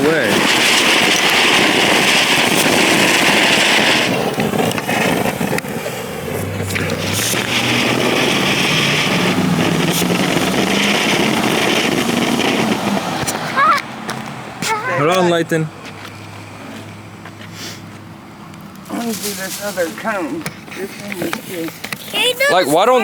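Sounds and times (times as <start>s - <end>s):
sharp cracks: 0.0s - 15.2s
firework fountain hissing: 0.0s - 15.5s, 17.5s - 17.9s, 18.8s - 23.0s.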